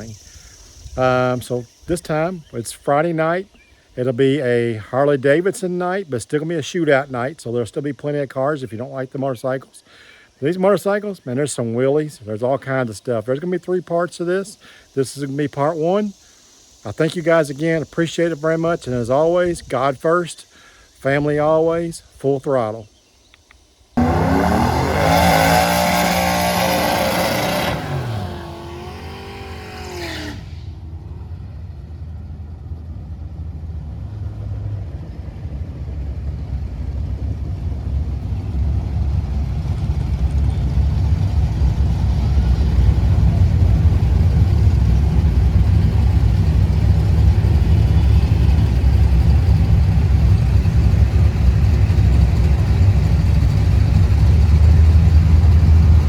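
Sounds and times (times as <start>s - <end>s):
racing engines: 24.0s - 56.0s.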